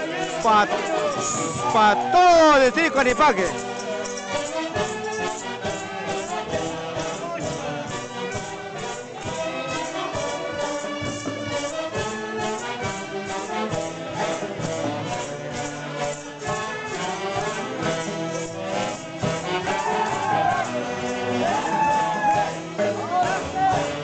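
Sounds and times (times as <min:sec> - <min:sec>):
festival orchestra playing: 0:00.0 - 0:24.0.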